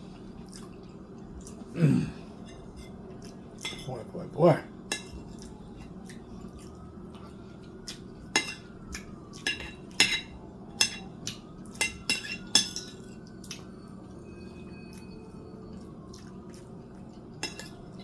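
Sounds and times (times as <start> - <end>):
cutlery clinking on a plate: 3.6 - 3.9, 4.9 - 5.4, 8.3 - 13.6, 17.4 - 18.0.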